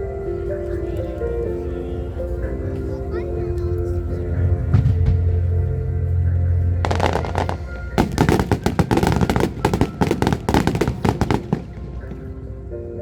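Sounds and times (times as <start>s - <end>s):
music with held tones: 0.0s - 13.0s
fireworks bangs and crackles: 6.8s - 12.6s.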